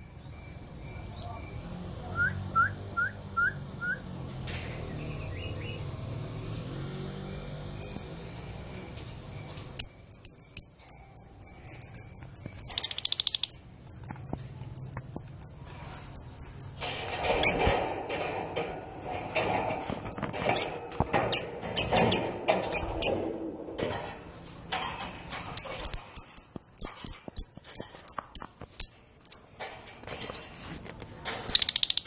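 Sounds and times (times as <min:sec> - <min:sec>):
canary chirping and trilling: 0:07.7 - 0:08.4, 0:09.4 - 0:18.2, 0:19.0 - 0:23.3, 0:24.7 - 0:29.6, 0:31.3 - 0:32.0
rustling clicking noise: 0:24.8 - 0:32.0.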